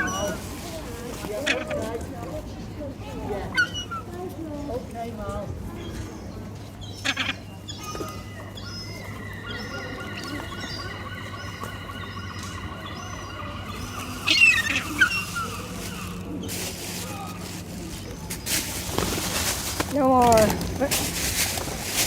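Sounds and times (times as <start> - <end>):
birds calling: 5.8 - 22.0.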